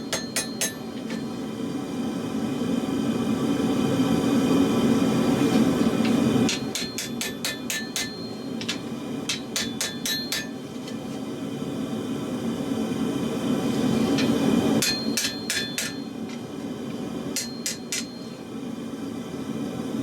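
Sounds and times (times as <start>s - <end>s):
hammer ringing on steel: 0.0s - 1.4s, 6.5s - 10.7s, 14.8s - 16.2s, 17.4s - 18.4s.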